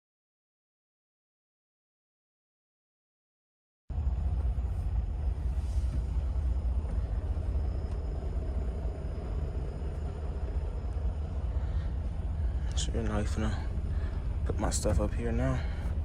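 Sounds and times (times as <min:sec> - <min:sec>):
diesel truck engine idling: 0:04.0 - 0:16.0.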